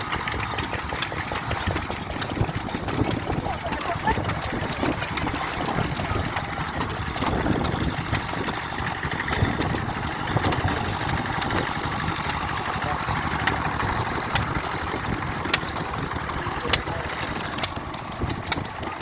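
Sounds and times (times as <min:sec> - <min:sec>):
sharp ticks: 0:00.0 - 0:19.0
stationary engines chugging: 0:00.0 - 0:19.0.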